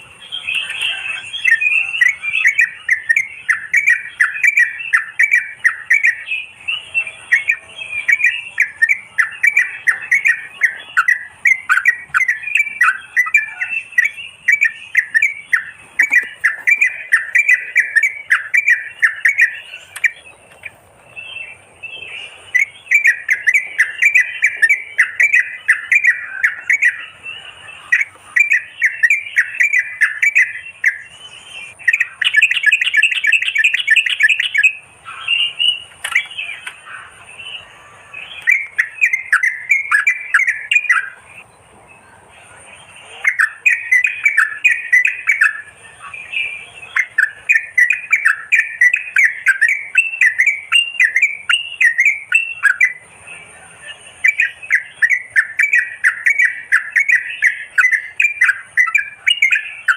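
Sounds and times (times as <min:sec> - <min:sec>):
bulbuls chattering: 0:00.0 - 0:59.9.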